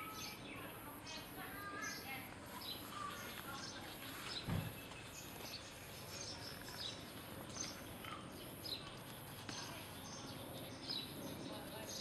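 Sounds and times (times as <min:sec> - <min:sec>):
birds chirping: 0:00.0 - 0:12.0
outdoor background hiss: 0:00.0 - 0:12.0.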